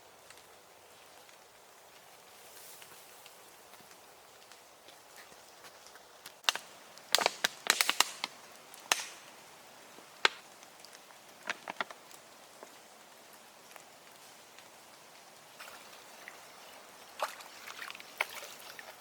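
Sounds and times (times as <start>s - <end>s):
faint steady hiss: 0.0s - 19.0s
sharp knocks and cracks: 6.4s - 9.3s, 10.2s - 10.5s, 11.4s - 12.0s.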